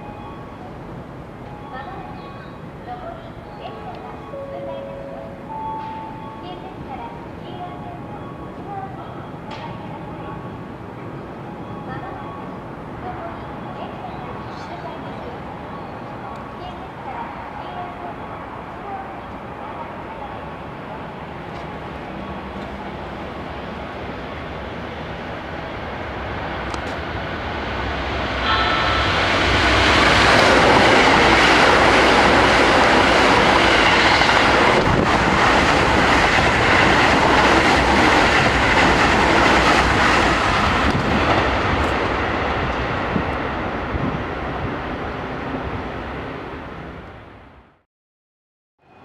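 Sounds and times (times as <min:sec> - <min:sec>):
high steady tones: 0:00.0 - 0:17.0
electric train passing: 0:00.0 - 0:47.6.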